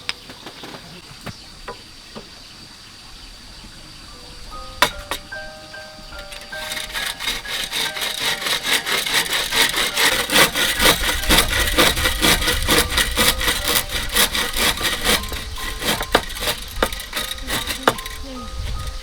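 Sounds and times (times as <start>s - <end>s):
hand saw cutting bamboo: 4.8s - 19.0s.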